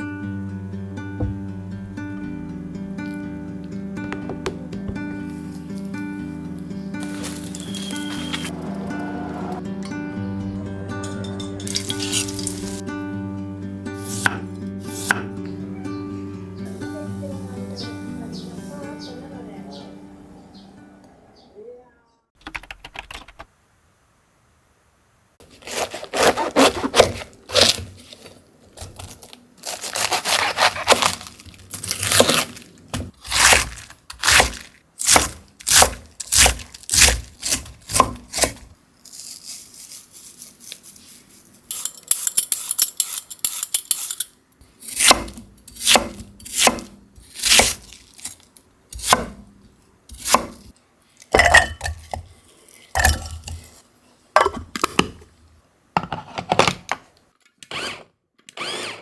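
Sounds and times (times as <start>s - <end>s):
knife cutting crisp vegetables: 6.9s - 8.5s, 11.7s - 12.8s, 14.0s - 15.4s, 25.4s - 51.3s.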